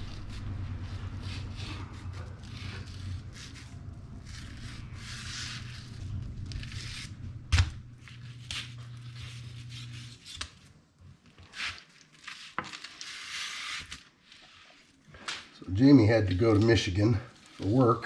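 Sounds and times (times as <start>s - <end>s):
low hum: 0.0s - 10.6s
scraping and cutting fish: 0.0s - 10.7s, 11.4s - 15.3s.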